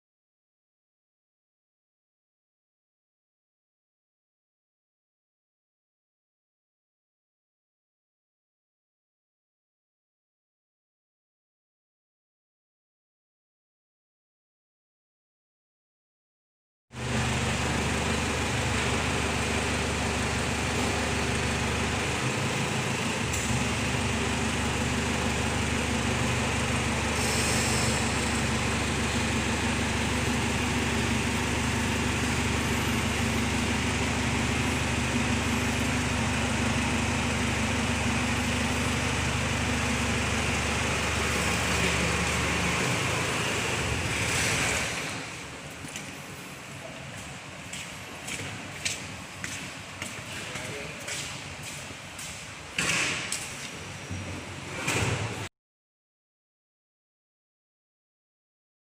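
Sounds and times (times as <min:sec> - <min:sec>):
generator engine running: 0:17.0 - 0:55.4.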